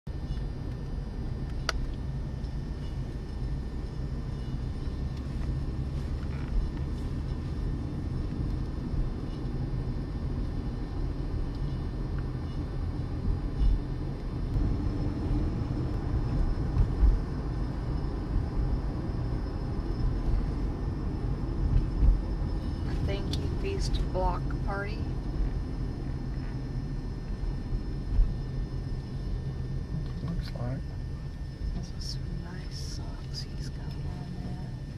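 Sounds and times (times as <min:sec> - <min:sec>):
car road and engine rumble: 0:00.0 - 0:34.9
low thumps: 0:14.4 - 0:17.8, 0:21.6 - 0:26.3.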